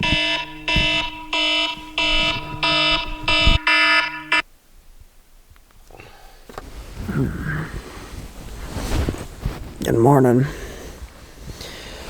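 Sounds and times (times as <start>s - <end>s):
alarm electronic beeps: 0.0s - 4.4s.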